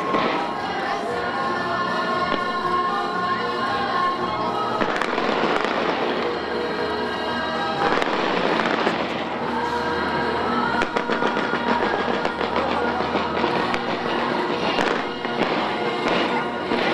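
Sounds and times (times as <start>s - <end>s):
music playing: 0.0s - 16.9s
fireworks crackling: 4.7s - 6.5s, 7.7s - 9.6s, 10.7s - 16.9s.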